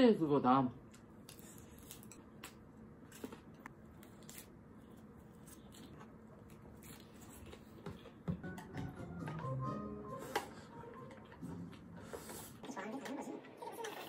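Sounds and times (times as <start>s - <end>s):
faint chewing: 0.9s - 8.2s.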